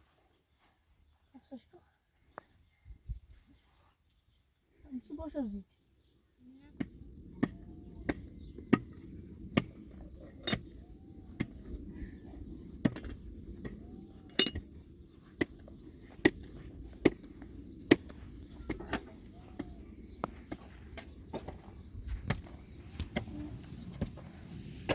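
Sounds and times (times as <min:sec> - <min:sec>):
steady low hum: 0:06.6 - 0:24.9.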